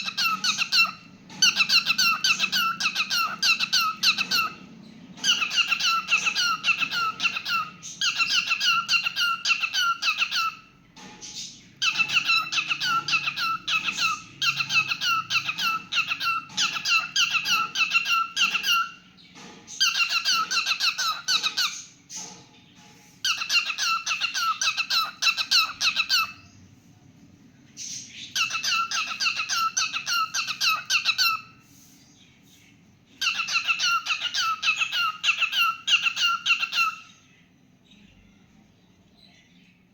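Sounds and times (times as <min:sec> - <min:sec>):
cockatiel chirping: 0:00.0 - 0:04.6, 0:05.2 - 0:10.7, 0:11.4 - 0:19.0, 0:19.8 - 0:21.9, 0:23.2 - 0:26.4, 0:27.8 - 0:31.6, 0:33.2 - 0:37.2.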